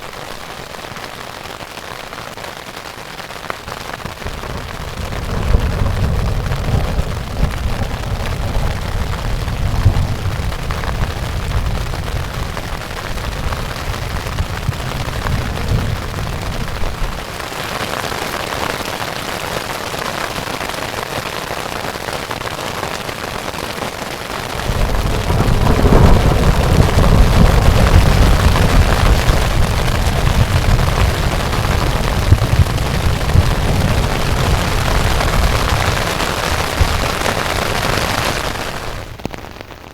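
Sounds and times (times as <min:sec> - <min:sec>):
rain falling: 0:00.0 - 0:39.9
thunder rumbling: 0:04.2 - 0:17.6, 0:24.1 - 0:39.5.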